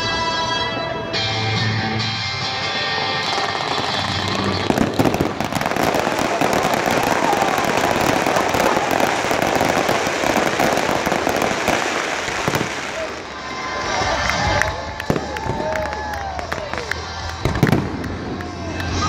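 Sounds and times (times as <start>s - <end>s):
loud firework bangs: 3.2s - 13.3s, 15.0s - 18.4s
fireworks crackling pops: 3.3s - 13.6s, 14.2s - 19.0s.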